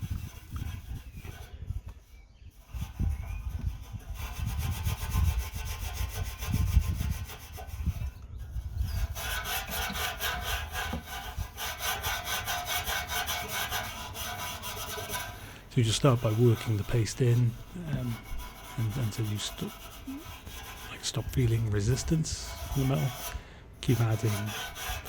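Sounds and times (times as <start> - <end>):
wire wool scrubbing metal: 9.0 - 25.0.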